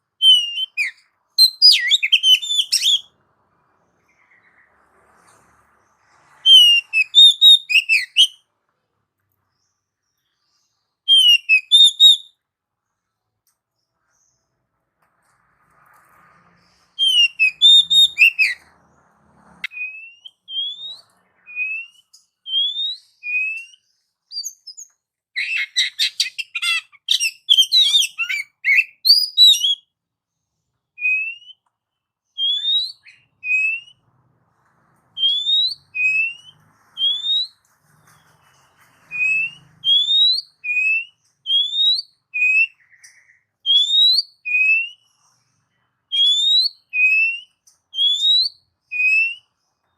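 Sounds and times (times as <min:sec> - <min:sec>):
songbird whistling rising notes: 0:00.0 - 0:03.2, 0:03.9 - 0:08.4, 0:11.0 - 0:12.4, 0:15.9 - 0:29.9, 0:31.0 - 0:31.7, 0:32.3 - 0:34.1, 0:35.1 - 0:45.5, 0:46.1 - 0:49.9
rapid chattering birdsong: 0:00.0 - 0:08.3, 0:35.2 - 0:44.2.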